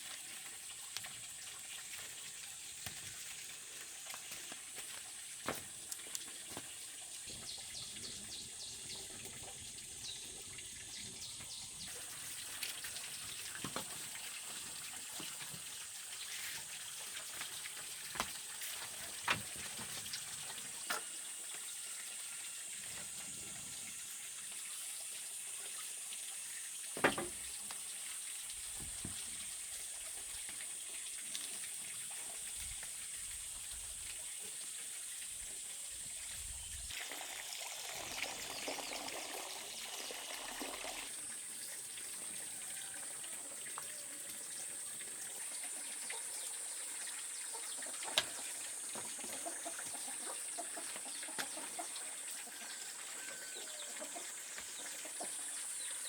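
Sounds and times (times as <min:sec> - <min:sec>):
water running: 0:00.0 - 0:56.0
sharp knocks: 0:27.0 - 0:27.4.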